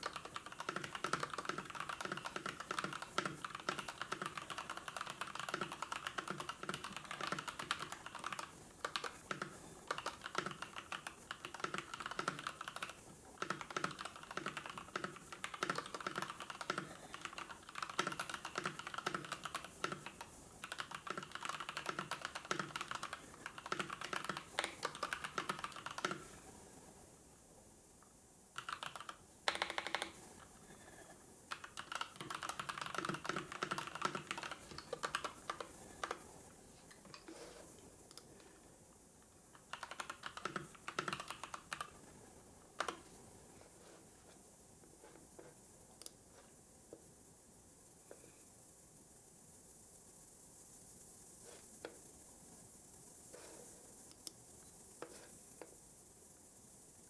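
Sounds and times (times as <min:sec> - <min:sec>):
typing on computer keyboard: 0:00.0 - 0:26.4, 0:28.5 - 0:36.3, 0:39.5 - 0:42.1, 0:42.8 - 0:43.1.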